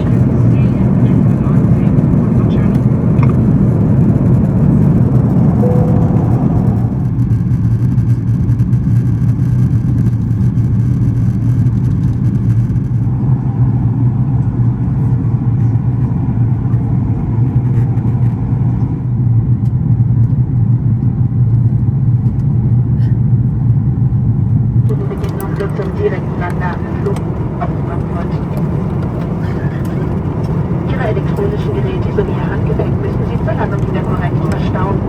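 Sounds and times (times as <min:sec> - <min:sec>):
aircraft cabin engine rumble: 0:00.0 - 0:07.5, 0:21.3 - 0:35.0.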